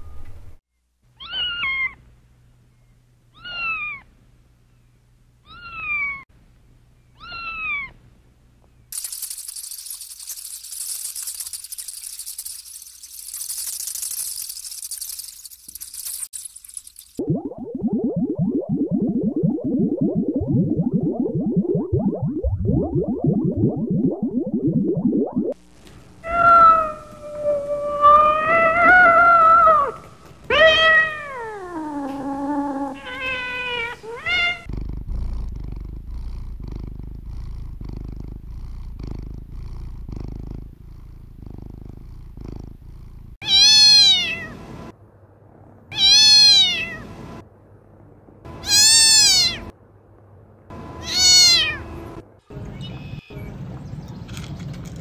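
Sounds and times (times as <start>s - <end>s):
kitten meowing: 1.2s - 2.0s, 3.4s - 4.0s, 7.2s - 7.9s, 26.2s - 32.3s, 43.4s - 44.5s, 45.9s - 47.0s, 48.6s - 49.7s, 51.0s - 51.8s, 52.6s - 53.5s.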